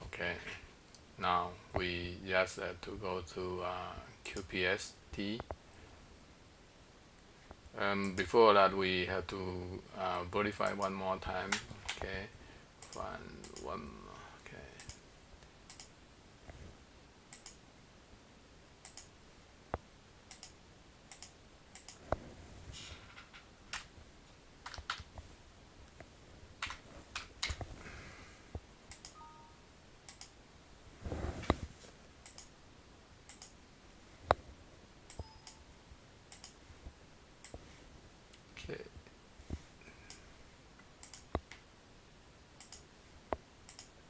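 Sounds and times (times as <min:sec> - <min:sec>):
mouse and keyboard clicks: 0:20.3 - 0:22.2, 0:43.7 - 0:43.9.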